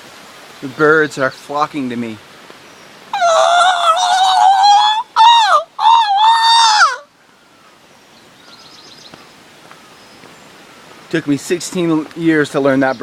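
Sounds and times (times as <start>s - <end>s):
faint outdoor background: 0.0s - 13.0s
man imitating bird call: 3.2s - 7.1s.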